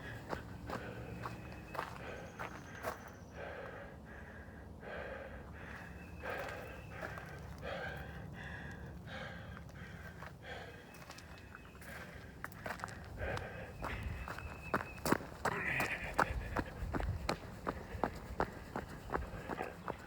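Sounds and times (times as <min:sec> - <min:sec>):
running footsteps: 0:00.0 - 0:03.0, 0:09.2 - 0:20.0
runner breathing hard: 0:00.0 - 0:20.0.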